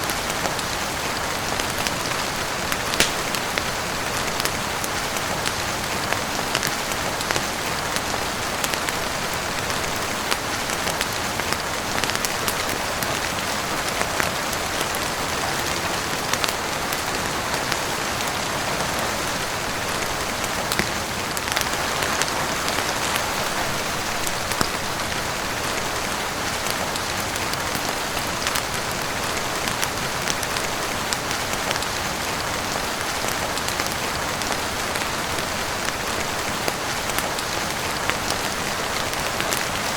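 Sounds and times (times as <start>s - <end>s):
heavy rain on a roof: 0.0s - 39.9s
small sharp ticks: 3.0s - 3.5s.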